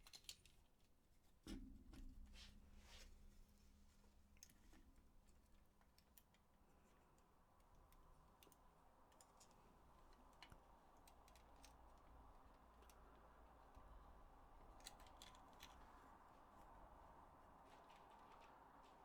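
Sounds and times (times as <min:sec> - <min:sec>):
clicks of plastic parts handled: 0:00.0 - 0:00.6.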